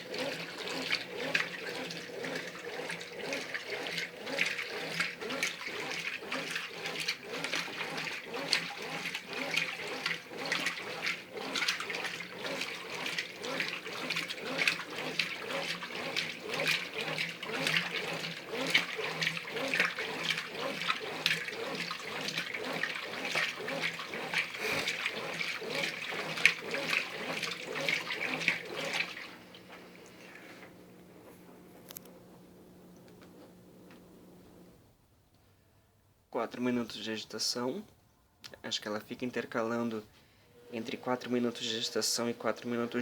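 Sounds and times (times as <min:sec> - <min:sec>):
water sloshing in washing machine: 0:00.0 - 0:30.8.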